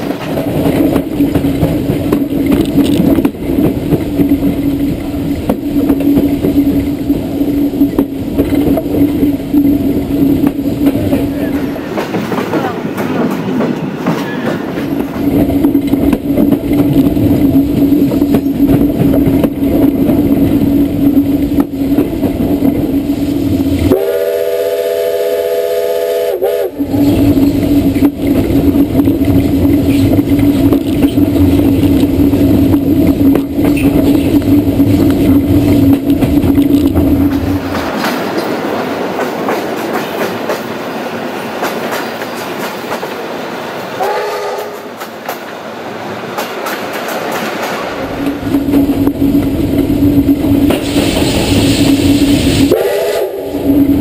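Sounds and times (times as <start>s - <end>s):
electric train humming: 0.0s - 54.0s
train horn: 23.8s - 27.3s, 44.0s - 44.9s, 52.7s - 53.7s.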